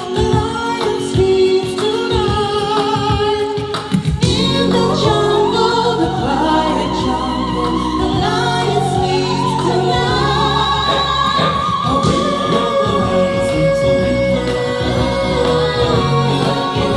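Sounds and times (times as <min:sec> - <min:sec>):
voices singing with vibrato: 0:00.0 - 0:16.9.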